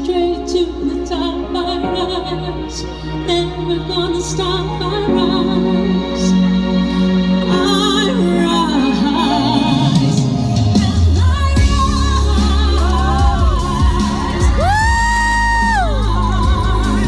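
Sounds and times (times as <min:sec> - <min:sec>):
woman singing pop ballad: 0:00.0 - 0:06.5, 0:07.4 - 0:17.0
backing track with bass: 0:09.6 - 0:17.0.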